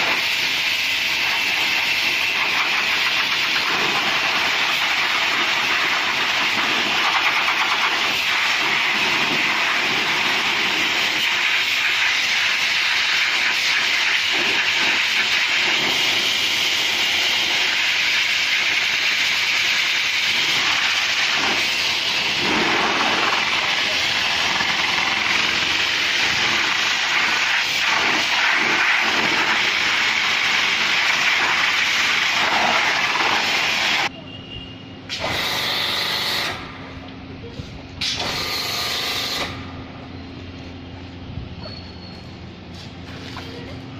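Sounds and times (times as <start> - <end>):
pressure washer spraying: 0.0 - 34.1, 35.1 - 36.7, 38.0 - 39.6.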